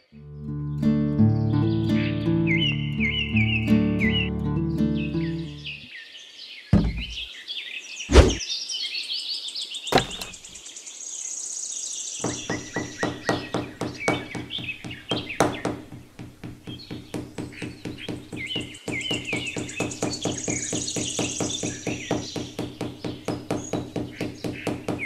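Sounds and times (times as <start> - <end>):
birds chirping: 1.4 - 25.0
sharp knocks: 6.8 - 7.3, 8.1 - 8.4, 9.9 - 10.5, 12.3 - 25.0.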